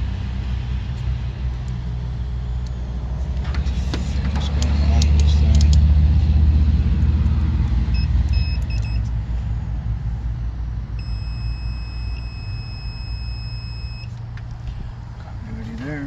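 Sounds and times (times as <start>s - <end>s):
low steady rumble: 0.0s - 16.0s
multimeter continuity beeps: 8.0s - 9.1s, 11.0s - 14.2s.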